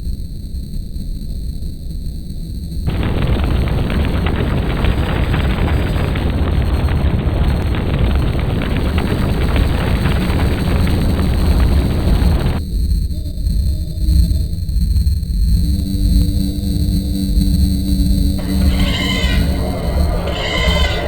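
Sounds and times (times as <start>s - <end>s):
low rumbling roar: 2.9s - 12.6s, 18.4s - 21.0s.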